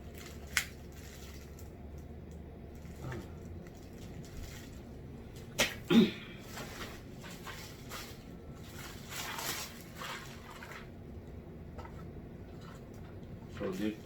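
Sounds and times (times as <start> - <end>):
packaging rustling: 0.0 - 5.5, 6.4 - 10.6.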